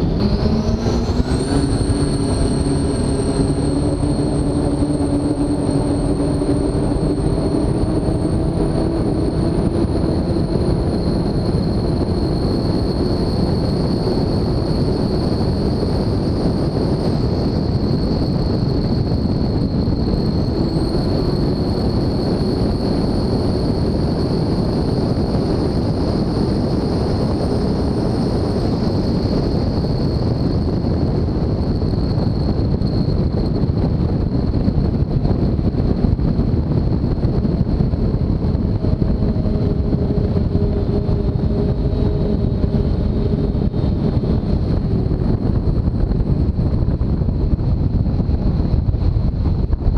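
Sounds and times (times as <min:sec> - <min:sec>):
boat engines droning: 0:00.0 - 0:30.8, 0:38.0 - 0:46.4
high engine whine: 0:00.0 - 0:49.9.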